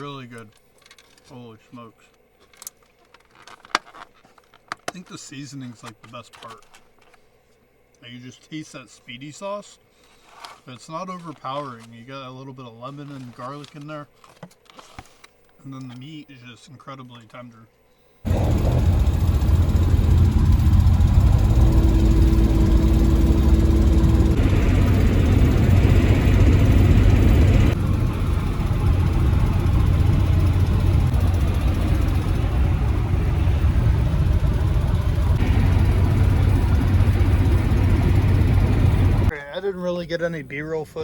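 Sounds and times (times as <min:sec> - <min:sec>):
van engine and road noise: 0:18.3 - 0:39.3.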